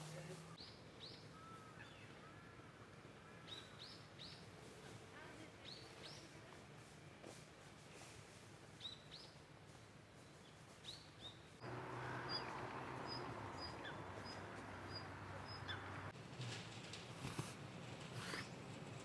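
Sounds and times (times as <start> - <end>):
birds chirping: 11.2 - 16.1.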